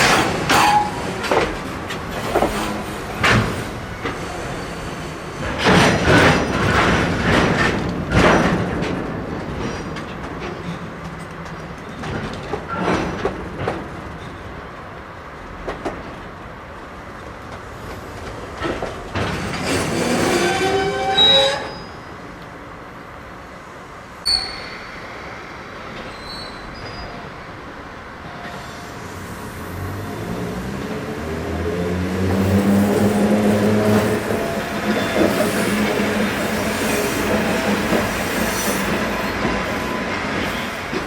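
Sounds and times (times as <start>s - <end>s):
train wheels squealing on rails: 0.0s - 7.1s, 19.2s - 22.3s, 24.2s - 27.6s, 28.2s - 30.2s, 32.4s - 41.0s
train clanks: 0.0s - 22.6s, 30.9s - 41.0s.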